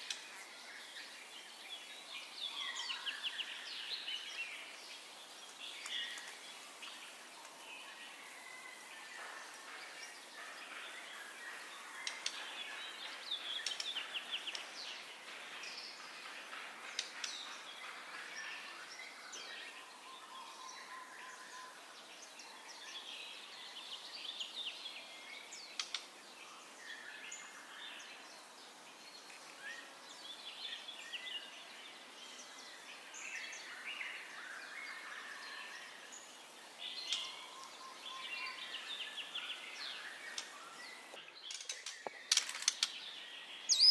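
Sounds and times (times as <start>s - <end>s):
faint background hiss: 0.0s - 43.9s.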